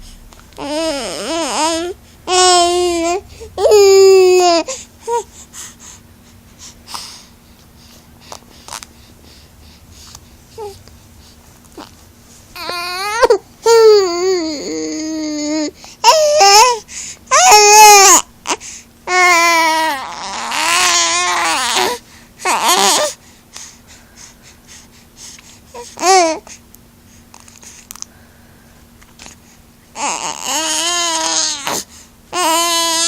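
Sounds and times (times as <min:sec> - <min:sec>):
baby crying: 0:00.6 - 0:05.3, 0:12.6 - 0:18.2, 0:19.1 - 0:23.2, 0:30.0 - 0:31.8, 0:32.4 - 0:33.0.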